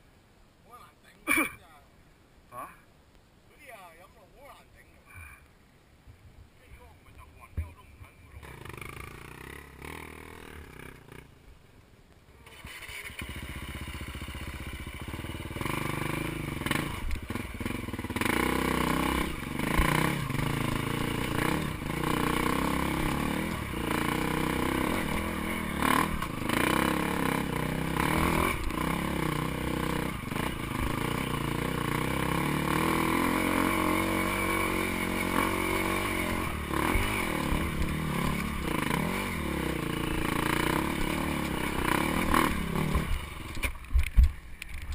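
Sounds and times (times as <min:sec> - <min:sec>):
dirt bike engine revving: 0:08.3 - 0:11.4, 0:12.4 - 0:43.8.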